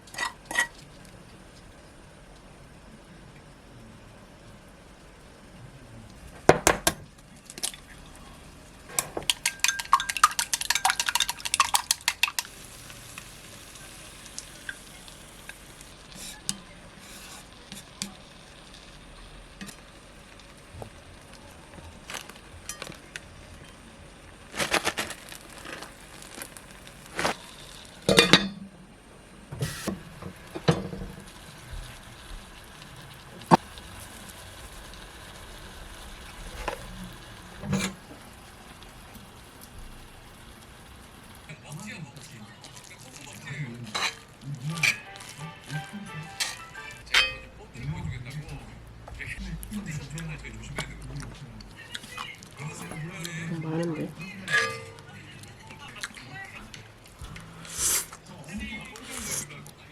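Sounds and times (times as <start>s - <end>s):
spoon stirring in a bowl: 8.9s - 12.6s, 14.6s - 18.4s, 42.2s - 47.5s, 54.2s - 56.2s
utensils clinking against dishes: 8.9s - 12.6s, 22.7s - 23.1s, 28.1s - 28.6s, 37.6s - 38.0s, 43.8s - 47.6s, 54.4s - 55.9s.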